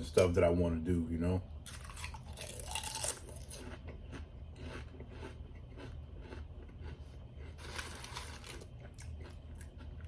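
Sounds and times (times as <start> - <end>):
person chewing crunchy food: 1.6 - 10.0.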